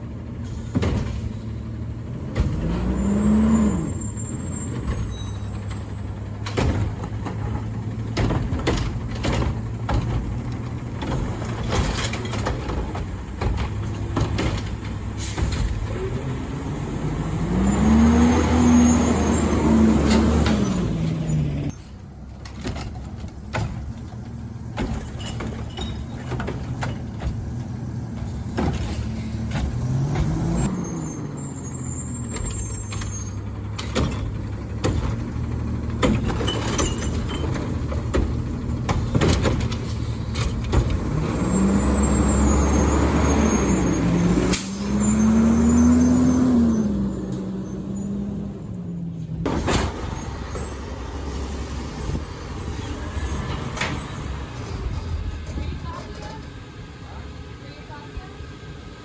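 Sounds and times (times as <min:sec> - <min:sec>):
diesel truck engine revving: 0:00.0 - 0:22.3, 0:26.4 - 0:55.7
knocks and clanks: 0:00.5 - 0:01.4, 0:04.8 - 0:16.4, 0:21.7 - 0:30.7, 0:32.2 - 0:42.6.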